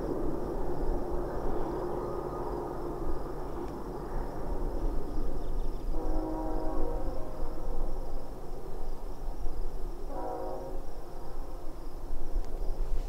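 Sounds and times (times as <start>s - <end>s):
distant freight train rumble: 0.0s - 13.0s
locomotive horn: 5.9s - 7.6s, 10.1s - 11.3s.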